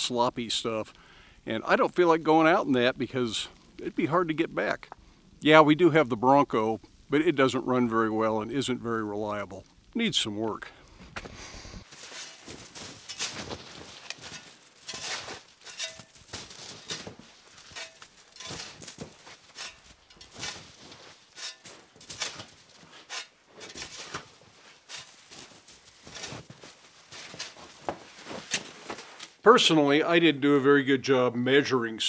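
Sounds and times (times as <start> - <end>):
crunching in wet snow: 11.8 - 29.4.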